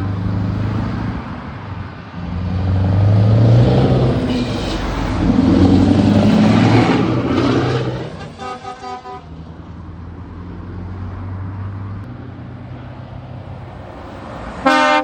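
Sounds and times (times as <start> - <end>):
heavy diesel engine drone: 0.0 - 11.2
truck air horn toots: 8.1 - 9.3, 14.6 - 15.0.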